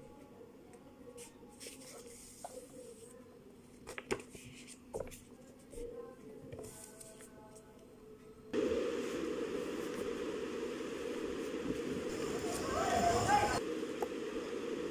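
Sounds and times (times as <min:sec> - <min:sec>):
low steady hum: 0:07.8 - 0:14.9.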